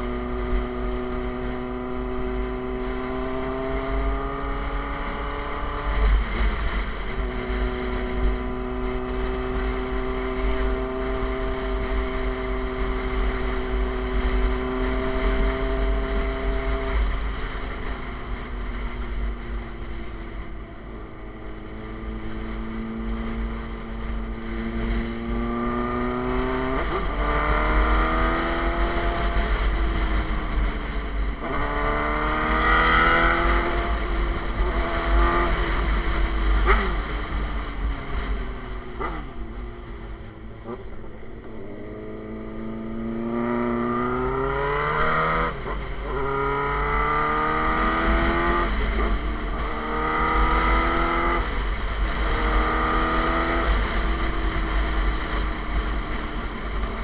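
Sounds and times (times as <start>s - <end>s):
motorcycle engine accelerating: 0.0s - 57.0s
wind rumble on microphone: 0.0s - 57.0s.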